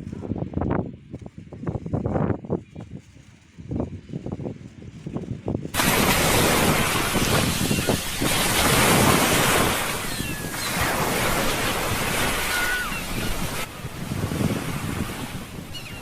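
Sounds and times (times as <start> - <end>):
wind buffeting microphone: 0.0 - 16.0
sea surf washing on shore: 5.8 - 16.0
faint high calls: 9.8 - 13.7, 15.7 - 16.0.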